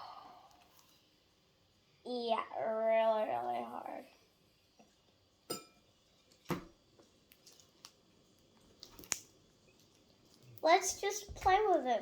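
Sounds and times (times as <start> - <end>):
slime sticky pops and clicks: 8.8 - 9.3.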